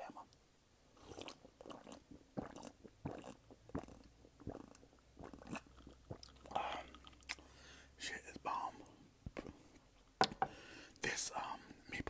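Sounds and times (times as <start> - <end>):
wet eating mouth sounds: 1.0 - 7.6.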